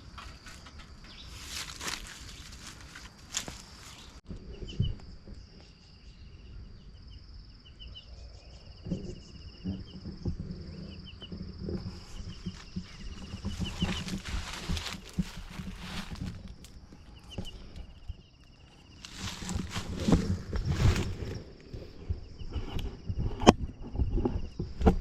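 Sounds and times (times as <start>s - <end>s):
insects chirring: 0.0s - 25.0s
low thuds and rustles: 8.8s - 18.2s, 19.0s - 25.0s.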